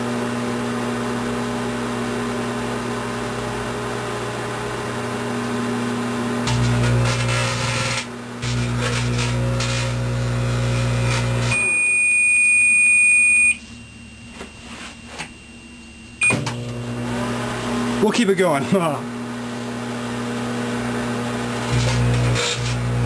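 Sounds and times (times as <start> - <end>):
microwave oven humming: 0.0 - 23.0.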